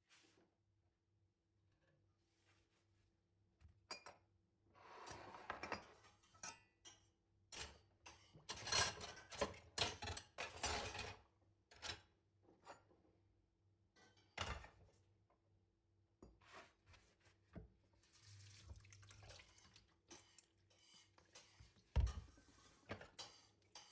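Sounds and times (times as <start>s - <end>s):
dishes and cutlery clinking: 6.4s - 11.1s, 20.1s - 23.9s.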